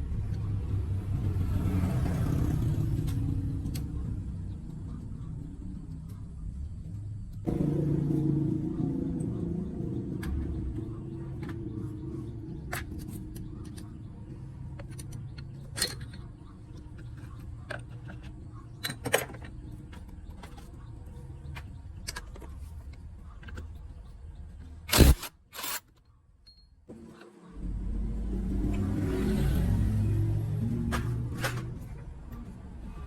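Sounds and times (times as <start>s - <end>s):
low steady rumble: 3.4s - 25.2s
metal tools clinking: 24.9s - 26.7s.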